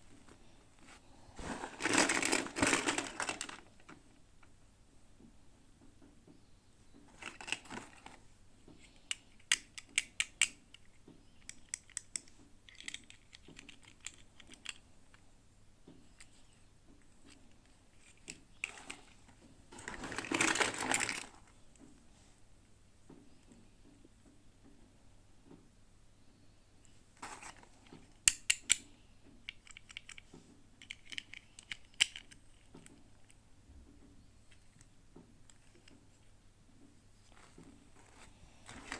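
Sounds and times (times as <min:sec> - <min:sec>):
plastic packaging crinkling: 0:00.2 - 0:04.0, 0:19.7 - 0:21.4, 0:37.3 - 0:38.9.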